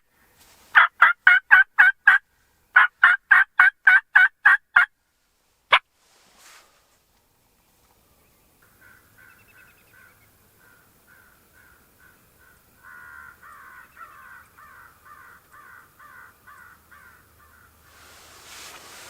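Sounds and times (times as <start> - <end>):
crows cawing: 8.7 - 17.8.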